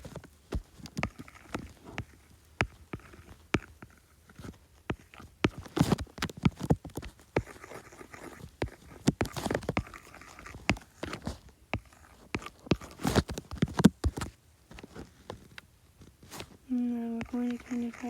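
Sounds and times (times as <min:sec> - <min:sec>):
scratchy drawing strokes: 0:07.3 - 0:13.2, 0:16.7 - 0:18.0.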